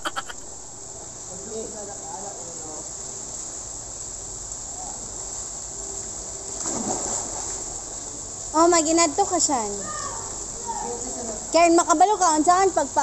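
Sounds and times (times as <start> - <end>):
high-pitched hissing buzz: 0.0 - 1.3
faint distant voices: 9.8 - 11.6.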